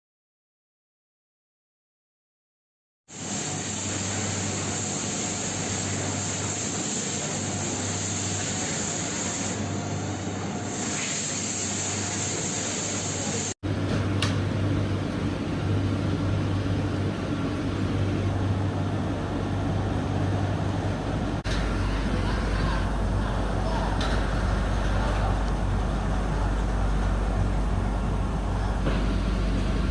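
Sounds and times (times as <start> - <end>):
low machine hum: 7.2 - 10.7, 13.2 - 29.9.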